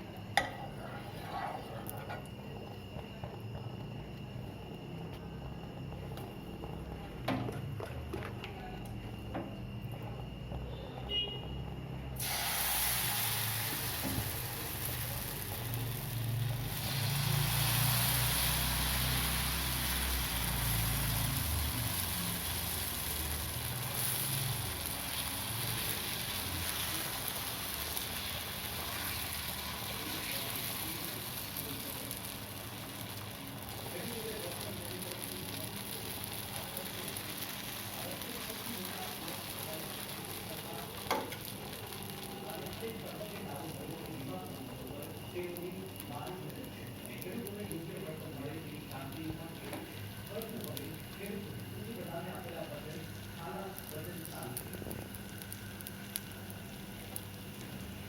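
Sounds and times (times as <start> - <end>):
batter sizzling in oil: 9.0 - 58.0.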